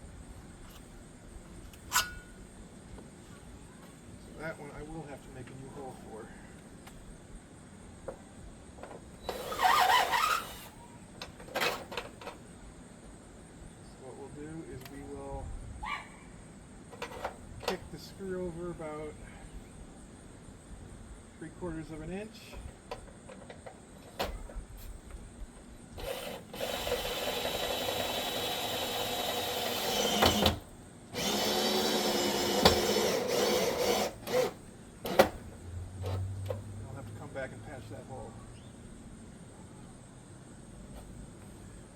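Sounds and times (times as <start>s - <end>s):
power drill whining: 9.3s - 10.8s, 26.0s - 30.6s, 31.2s - 35.4s.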